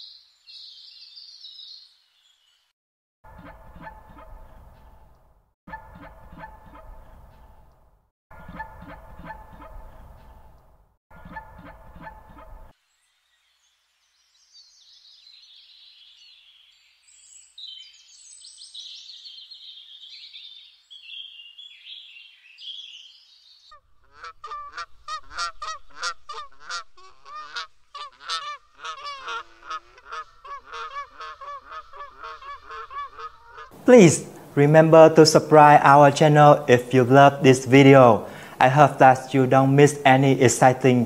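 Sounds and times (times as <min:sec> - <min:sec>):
small birds twittering: 0:00.0 - 0:02.7, 0:12.3 - 0:35.4
flock of birds honking: 0:24.0 - 0:33.8.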